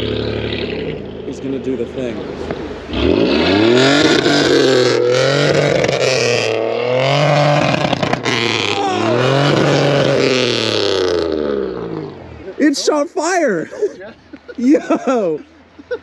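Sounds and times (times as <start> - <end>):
car engine revving: 0.0 - 13.4
exhaust cracks and pops: 7.4 - 12.2.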